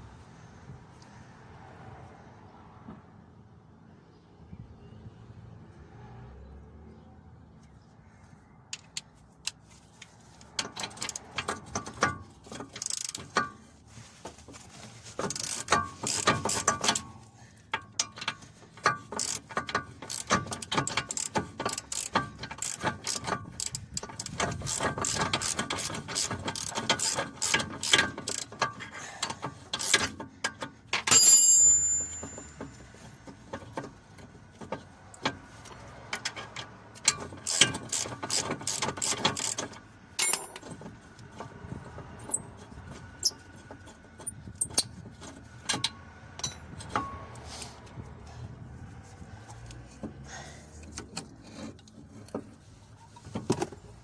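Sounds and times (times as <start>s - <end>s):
ratchet wrench clicking: 10.5s - 13.6s, 15.2s - 32.4s, 35.6s - 40.6s.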